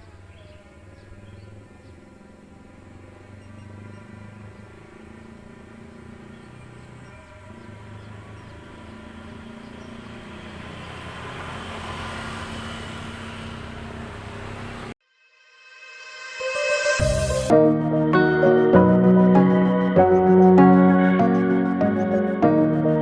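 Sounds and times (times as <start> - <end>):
drone propellers humming: 16.5 - 23.0.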